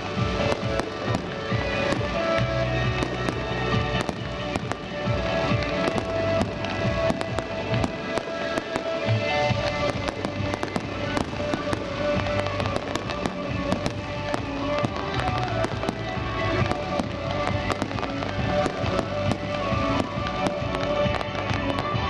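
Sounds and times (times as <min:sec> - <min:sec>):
fireworks bangs and crackling: 0:00.0 - 0:22.0
music playing: 0:00.0 - 0:22.0.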